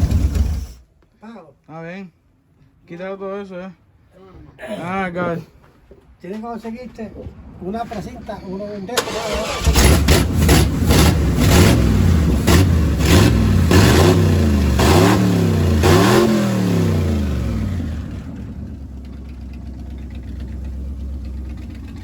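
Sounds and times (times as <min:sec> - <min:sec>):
car engine revving and idling: 0:09.0 - 0:22.0.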